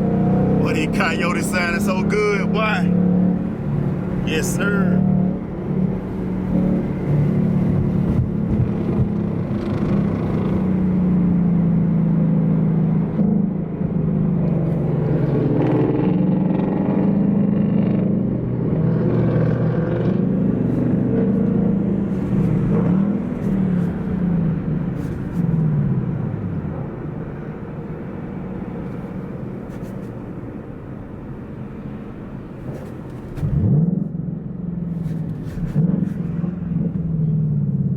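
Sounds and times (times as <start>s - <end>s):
car exhaust at low revs: 32.5s - 37.9s.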